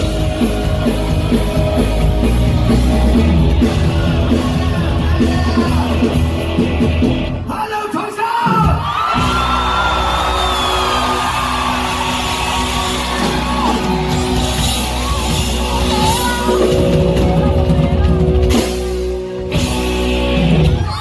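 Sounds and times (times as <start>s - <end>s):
rock band playing live: 0.0s - 21.0s
person singing: 3.5s - 6.2s.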